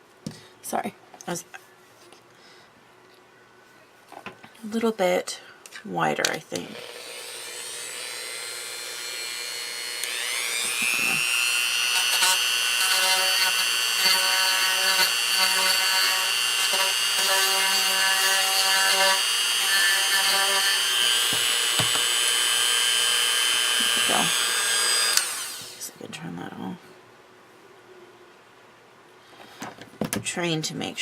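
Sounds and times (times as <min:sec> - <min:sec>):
rotary drill grinding wood: 0:06.7 - 0:25.9.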